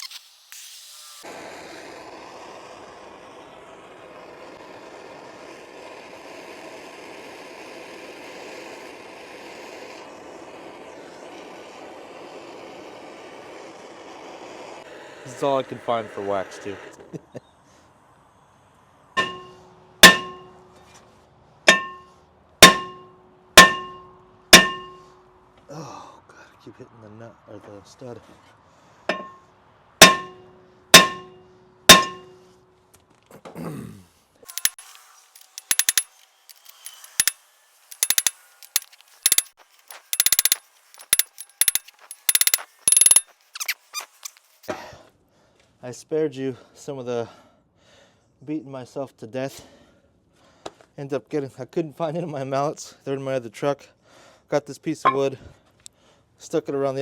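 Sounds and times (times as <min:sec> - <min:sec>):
hammer striking metal hub: 0:19.2 - 0:20.5, 0:21.7 - 0:25.0, 0:29.1 - 0:29.4, 0:30.0 - 0:30.4, 0:31.0 - 0:32.4, 0:34.5 - 0:34.8, 0:35.4 - 0:43.2, 0:55.1 - 0:55.3.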